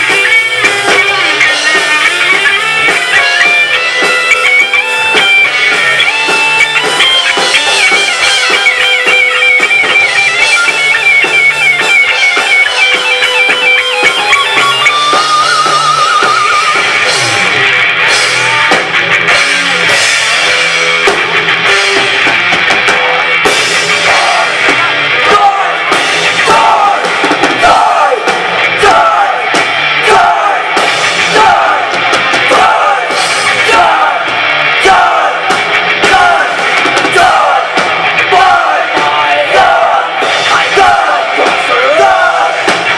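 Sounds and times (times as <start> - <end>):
lead guitar high wavering notes: 0.0 - 18.8
drum hits: 0.0 - 42.9
rock band playing live: 0.0 - 42.9.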